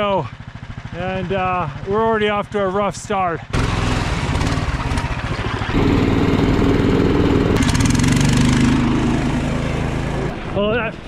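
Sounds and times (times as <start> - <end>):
small engine running: 0.0 - 10.9.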